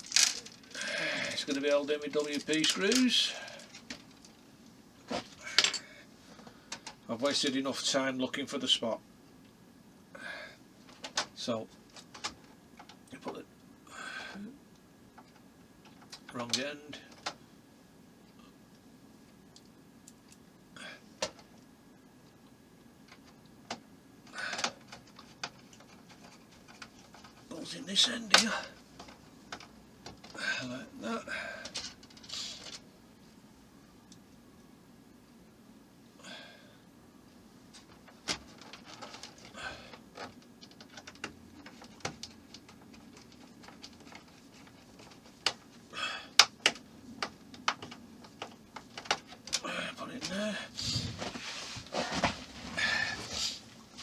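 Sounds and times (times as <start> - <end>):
sharp clicks of small parts: 0.0 - 0.8
rustling: 0.0 - 4.4, 50.8 - 54.0
rustle of small parts: 0.0 - 7.0, 31.6 - 33.4, 37.6 - 49.6.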